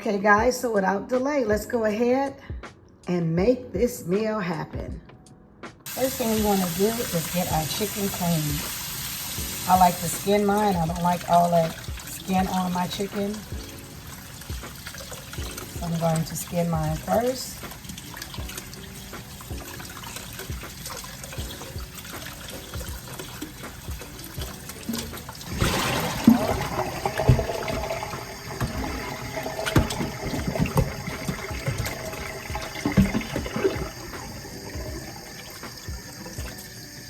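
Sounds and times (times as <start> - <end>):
tap running water into sink: 5.9 - 37.0
knocks and splashes from handling: 17.1 - 36.6.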